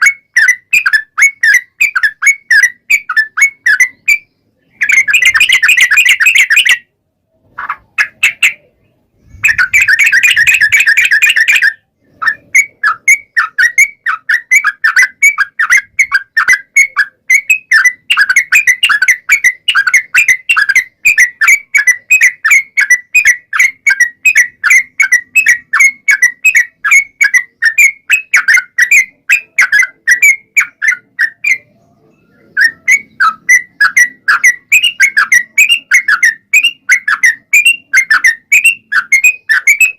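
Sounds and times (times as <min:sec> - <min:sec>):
bird singing rolling song: 0:00.0 - 0:39.9.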